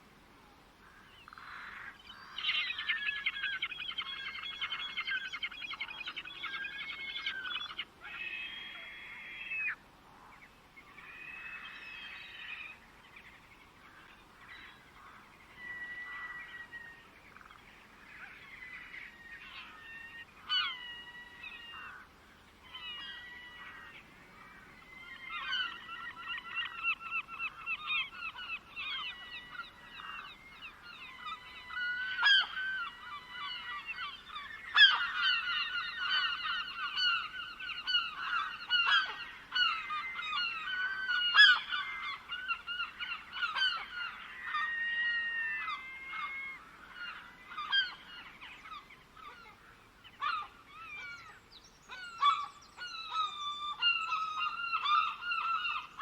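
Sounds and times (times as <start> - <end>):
birds calling: 0.8 - 56.0.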